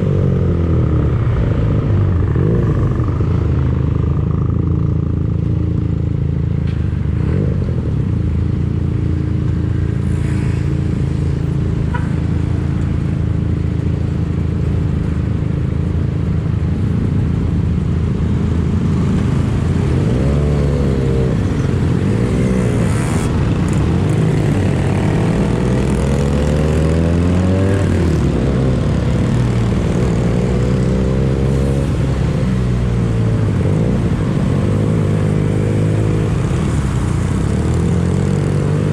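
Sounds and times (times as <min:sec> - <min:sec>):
motorcycle engine revving: 0:18.8 - 0:38.9.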